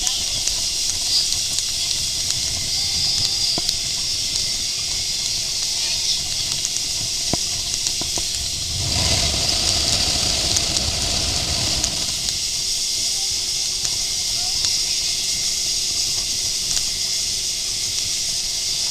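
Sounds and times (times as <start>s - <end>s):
deep rumble: 8.2s - 12.4s
boat hissing over water: 8.2s - 12.5s.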